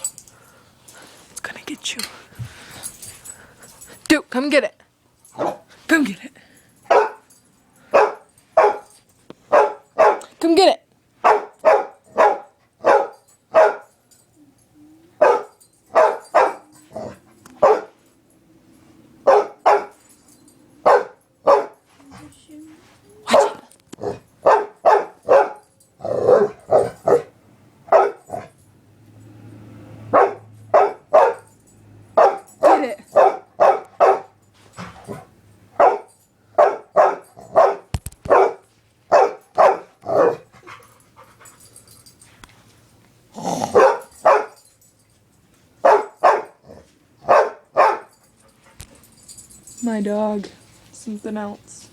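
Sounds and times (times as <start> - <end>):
dog barking: 5.4 - 5.7, 6.9 - 7.2, 7.9 - 8.9, 9.5 - 10.3, 11.2 - 13.9, 15.2 - 17.9, 19.2 - 20.0, 20.8 - 21.8, 23.3 - 27.3, 27.9 - 28.5, 30.1 - 31.5, 32.2 - 34.4, 35.1 - 40.5, 43.7 - 44.6, 45.8 - 46.6, 47.2 - 48.2.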